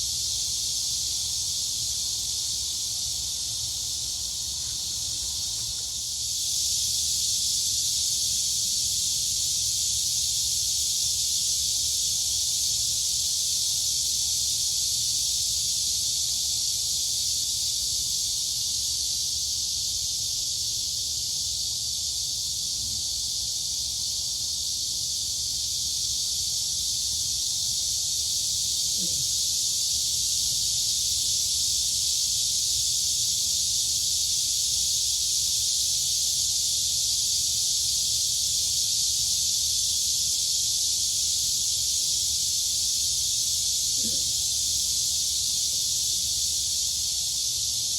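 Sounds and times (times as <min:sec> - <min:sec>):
crickets and cicadas buzzing: 0:00.0 - 0:47.9.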